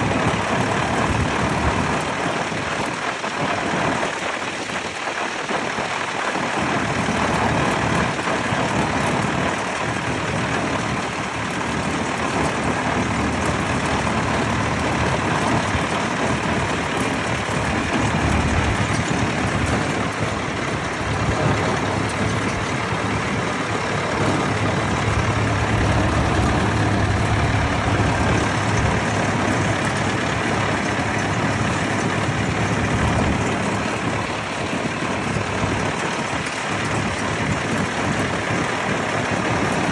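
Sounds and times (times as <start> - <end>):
tractor engines running: 0.0 - 39.9.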